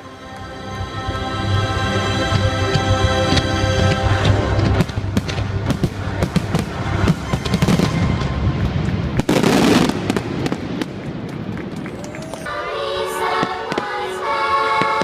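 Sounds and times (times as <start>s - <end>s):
music soundtrack: 0.0s - 11.5s, 12.4s - 15.0s
fireworks bangs and crackles: 3.8s - 12.4s, 13.2s - 15.0s.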